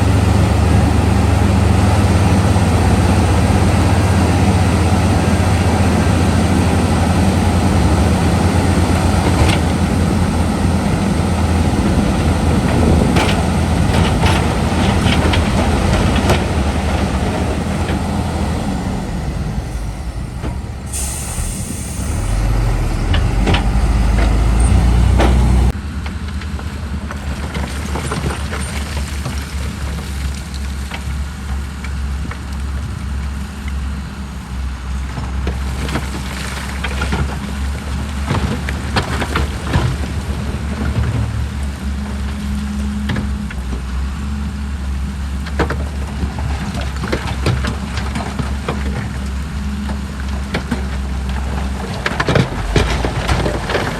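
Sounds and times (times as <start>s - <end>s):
loud deep rumble: 0.0s - 25.9s, 35.5s - 53.9s
diesel machinery engines rumbling: 0.0s - 53.9s
air brake hiss: 20.7s - 23.5s.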